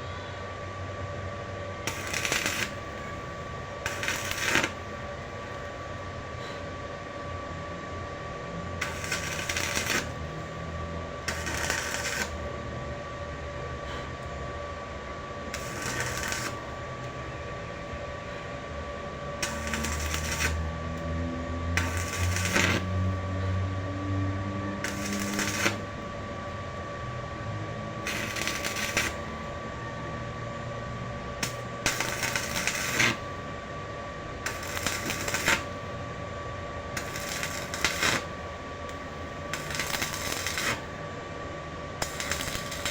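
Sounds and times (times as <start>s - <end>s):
high electrical hum: 0.0s - 42.9s
welding arc crackling: 1.8s - 5.0s, 8.8s - 12.5s, 15.6s - 16.8s, 19.2s - 26.3s, 27.0s - 29.7s, 31.4s - 33.4s, 34.4s - 36.2s, 36.9s - 41.0s, 42.0s - 42.9s.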